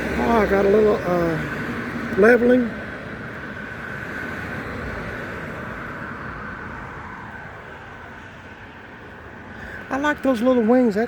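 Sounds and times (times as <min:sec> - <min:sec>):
vehicle passing: 0:00.0 - 0:11.0.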